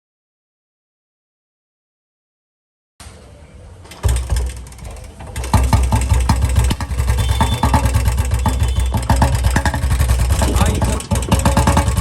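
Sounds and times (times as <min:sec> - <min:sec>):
engine ticking knock: 0:03.9 - 0:12.0
motorcycle engine idling: 0:03.9 - 0:12.0.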